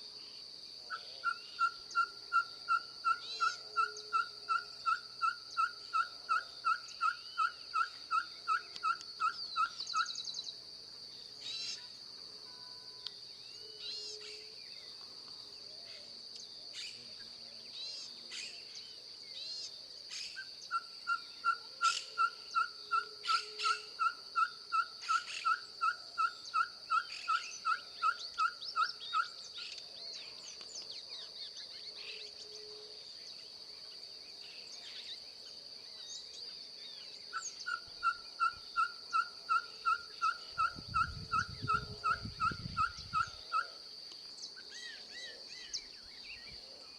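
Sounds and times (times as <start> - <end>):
high insect drone: 0.0 - 46.9
owl whistled toots: 1.2 - 10.3, 20.1 - 29.7, 37.3 - 43.7.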